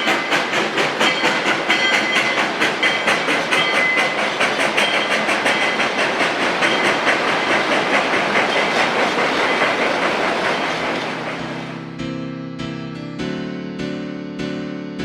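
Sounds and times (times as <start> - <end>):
high wheel squeal: 0.0 - 11.9
train wheels clattering on rails: 0.0 - 11.9
piano music: 10.8 - 15.0.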